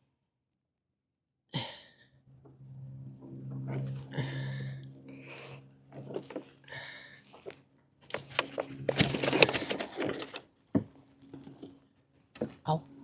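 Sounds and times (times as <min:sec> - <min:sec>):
rapid clicking and knocking: 0:08.1 - 0:10.4.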